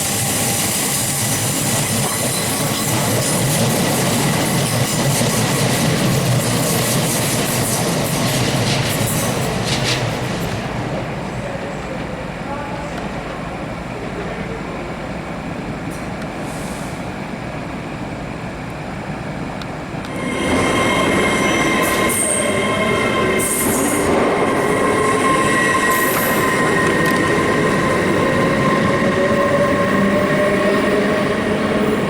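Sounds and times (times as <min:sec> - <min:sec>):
train rumbling: 0:00.0 - 0:32.0
rising whine: 0:20.1 - 0:31.0
steady high tones: 0:20.1 - 0:32.0.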